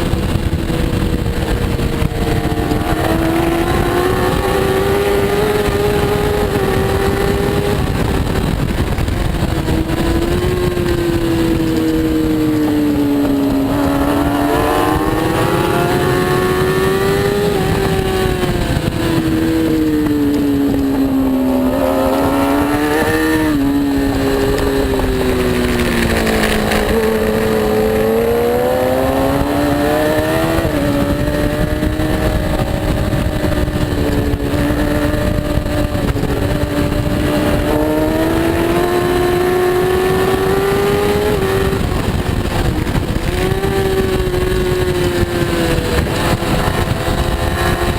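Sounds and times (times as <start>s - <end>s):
racing motorcycle engine: 0.0s - 47.9s
rushing noise: 21.0s - 35.3s.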